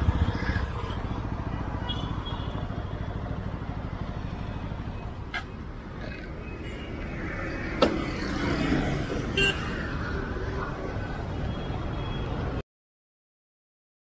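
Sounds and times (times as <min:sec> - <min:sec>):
motorcycle engine idling: 0:00.0 - 0:05.9.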